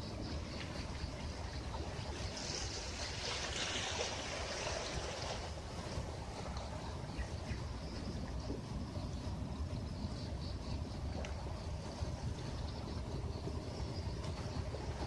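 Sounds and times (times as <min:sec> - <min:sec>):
steady low rumble: 0:00.0 - 0:15.0
ocean wave washing in: 0:02.0 - 0:06.6.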